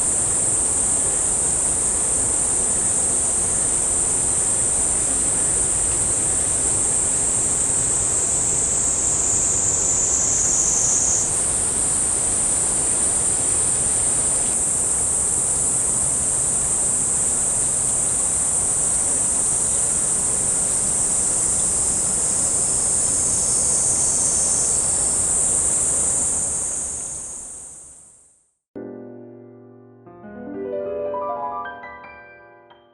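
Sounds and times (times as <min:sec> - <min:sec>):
low background hiss: 0:00.0 - 0:18.4, 0:28.8 - 0:32.0
high-pitched insect chorus: 0:00.0 - 0:28.2.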